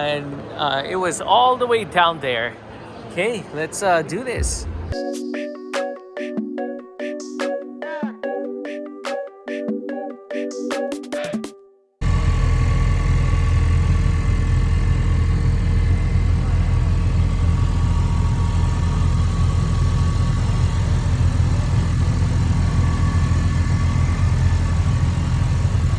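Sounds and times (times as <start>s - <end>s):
vehicle engine running: 12.0s - 25.9s.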